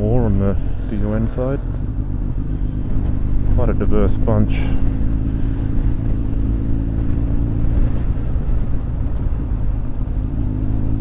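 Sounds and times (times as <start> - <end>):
motorcycle engine running: 0.0 - 11.0
wind noise on microphone: 4.3 - 11.0.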